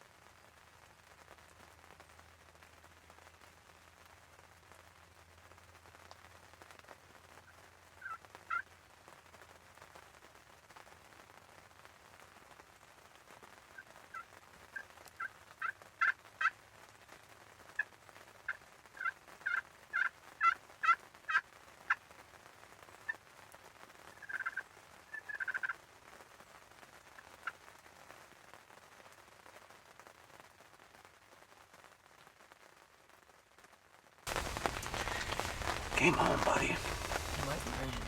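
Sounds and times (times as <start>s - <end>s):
turkey calling: 8.0s - 8.6s, 19.0s - 22.0s, 24.2s - 25.7s, 34.3s - 38.0s
turkey rattling call: 8.0s - 8.6s, 19.0s - 22.0s, 24.2s - 25.7s, 34.3s - 38.0s.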